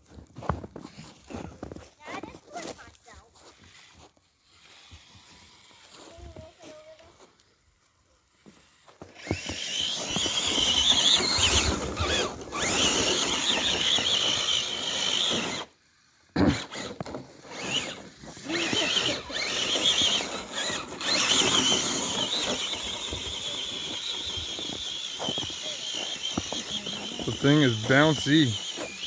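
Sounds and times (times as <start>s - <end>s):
electric motors whining: 9.0s - 29.0s.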